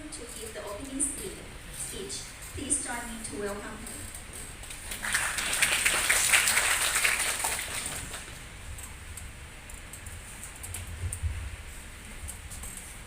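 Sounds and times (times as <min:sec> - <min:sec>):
audience applauding: 0:04.8 - 0:08.4.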